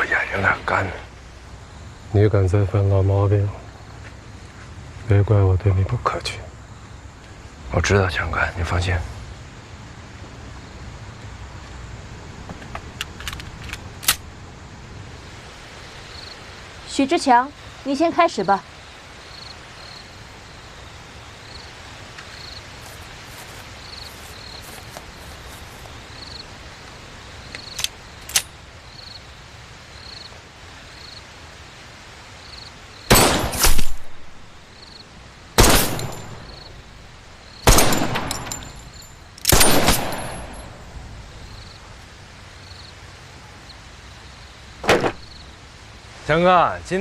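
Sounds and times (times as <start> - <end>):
gunshots with echo: 33.1 - 34.0, 35.6 - 36.4, 37.6 - 38.6, 39.5 - 40.5.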